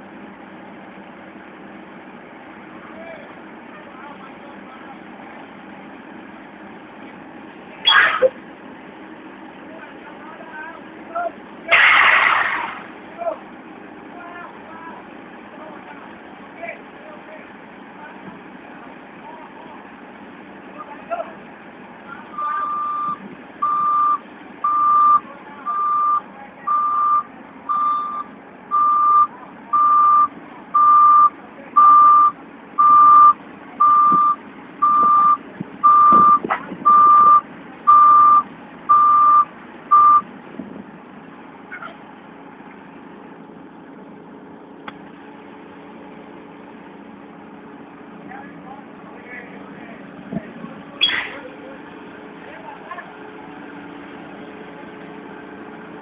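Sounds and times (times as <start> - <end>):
engine running: 0.0 - 56.0
backup alarm beeping: 22.4 - 40.3.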